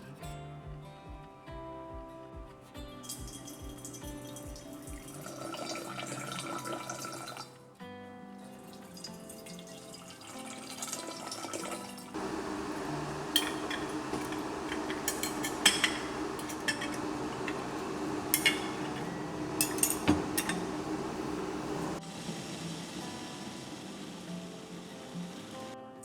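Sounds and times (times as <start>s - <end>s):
liquid pouring into glass jar: 5.0s - 7.5s
glassy clinks: 12.2s - 22.0s.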